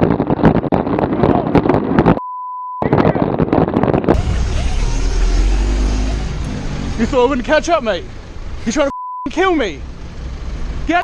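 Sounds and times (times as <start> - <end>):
wind buffeting microphone: 0.0 - 2.2
censor bleep: 2.2 - 2.8, 8.9 - 9.3.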